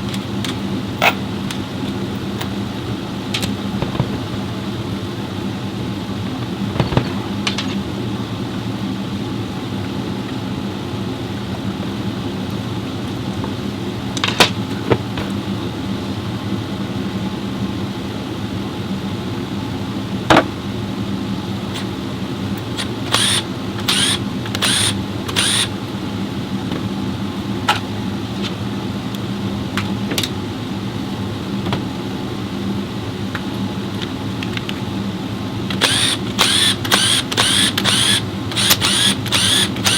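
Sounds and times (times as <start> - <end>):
machine hum: 0.0 - 9.7, 19.5 - 39.9.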